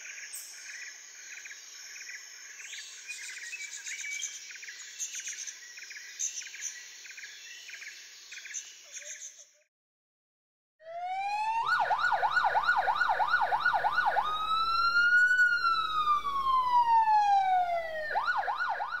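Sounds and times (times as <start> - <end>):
emergency siren yelp and wail: 10.8 - 19.0.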